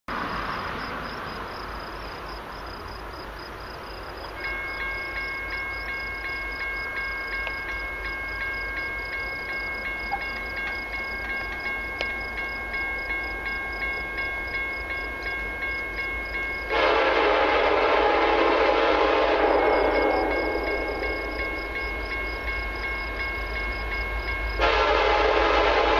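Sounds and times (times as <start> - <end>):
crossing warning bell ringing: 3.7 - 25.9
locomotive air horn: 16.7 - 20.5, 24.6 - 25.9.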